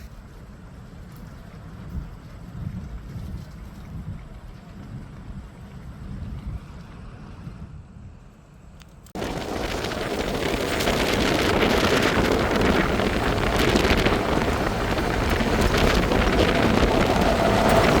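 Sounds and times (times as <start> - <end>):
wind buffeting microphone: 0.0 - 18.0
loud steady rushing noise: 9.2 - 18.0.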